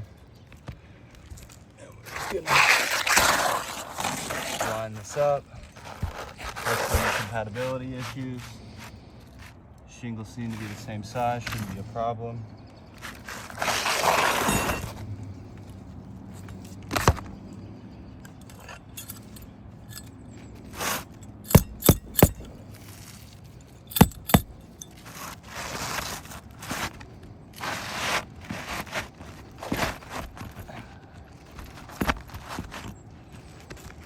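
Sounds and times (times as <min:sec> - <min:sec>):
scraping and rustling of tools: 0:13.0 - 0:17.4, 0:18.2 - 0:34.0.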